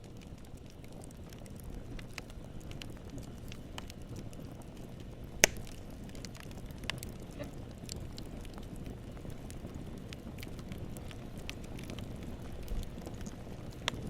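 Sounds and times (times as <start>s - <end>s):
burning wood crackling: 0.0s - 14.0s
campfire flames rumbling: 0.0s - 14.0s
loud fire pop: 5.4s - 5.8s.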